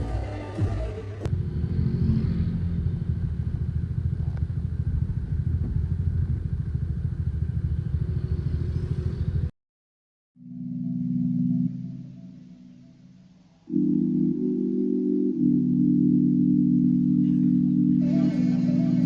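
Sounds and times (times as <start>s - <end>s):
engine running steadily: 1.3s - 9.5s.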